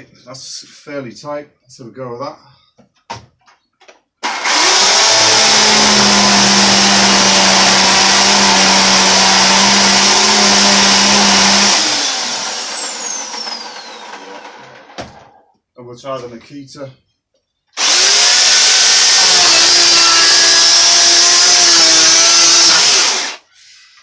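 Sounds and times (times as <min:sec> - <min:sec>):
electric chainsaw cutting wood: 0:04.2 - 0:15.0, 0:17.8 - 0:23.4
motor winding down whine: 0:04.3 - 0:15.0, 0:17.8 - 0:23.4.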